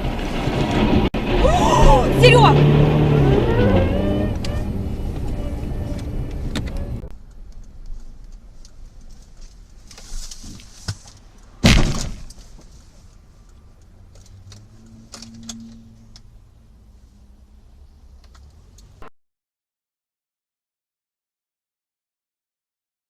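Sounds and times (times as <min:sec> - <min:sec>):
quiet road noise: 0:00.0 - 0:19.1
car crash bang: 0:11.6 - 0:12.4.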